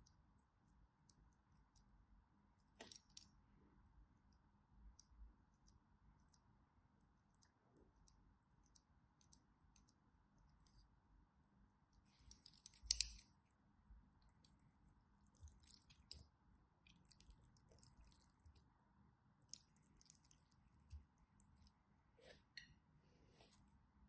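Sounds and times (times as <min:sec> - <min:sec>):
slime crackling and clicking: 0:12.1 - 0:13.3.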